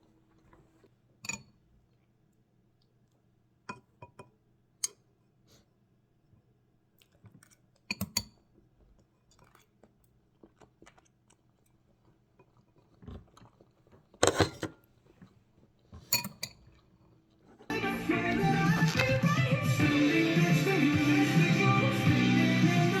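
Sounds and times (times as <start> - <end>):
dishes and cutlery clinking: 16.0 - 16.9.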